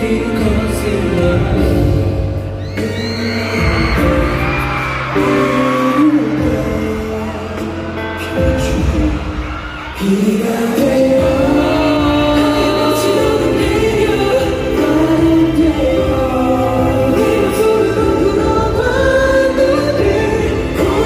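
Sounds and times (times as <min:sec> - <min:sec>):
pop ballad over sound system: 0:00.0 - 0:21.0.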